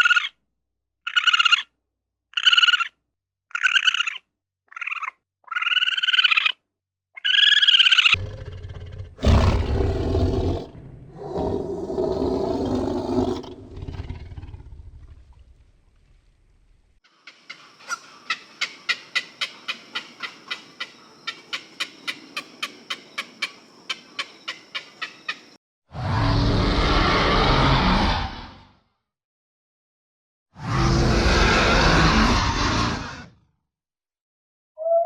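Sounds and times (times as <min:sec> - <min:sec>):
big cat roaring: 0:08.2 - 0:15.3, 0:25.9 - 0:28.8, 0:30.6 - 0:33.4.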